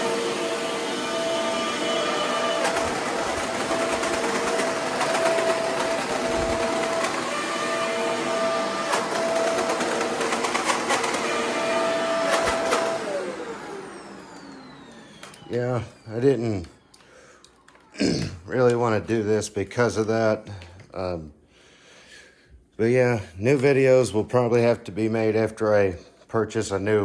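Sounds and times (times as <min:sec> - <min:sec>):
vacuum cleaner whining: 0:00.0 - 0:19.4.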